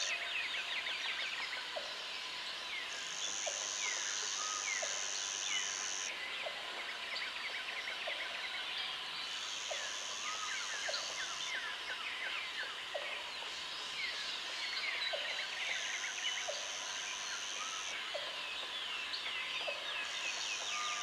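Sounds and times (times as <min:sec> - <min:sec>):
high insect buzz: 0:02.9 - 0:06.1.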